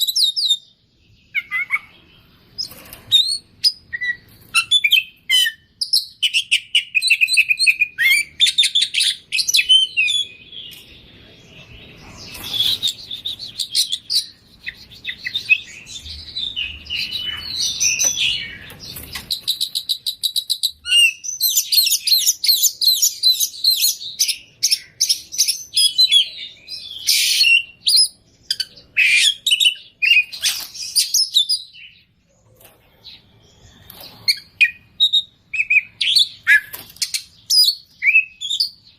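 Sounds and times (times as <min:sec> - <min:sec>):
bird singing varied song: 0:00.0 - 0:38.9.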